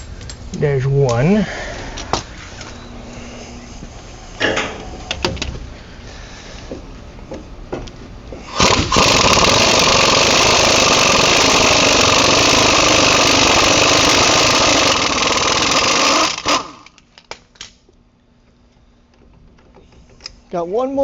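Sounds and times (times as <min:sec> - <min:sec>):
power wrench running: 0:08.5 - 0:17.0.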